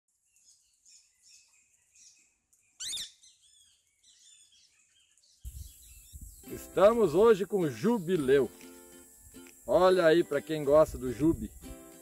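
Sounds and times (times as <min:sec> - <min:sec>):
birds chirping: 0:00.4 - 0:09.1.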